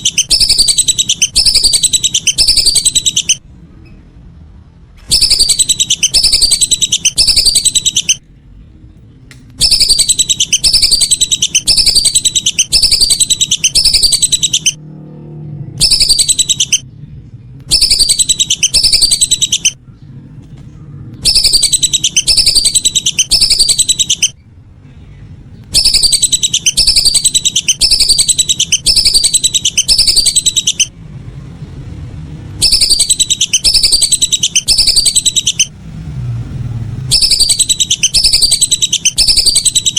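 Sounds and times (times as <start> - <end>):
duck whistling calls: 0.0 - 3.4, 5.1 - 8.2, 9.6 - 14.8, 15.8 - 16.8, 17.7 - 19.8, 21.2 - 24.4, 25.7 - 30.9, 32.6 - 35.7, 37.1 - 39.9.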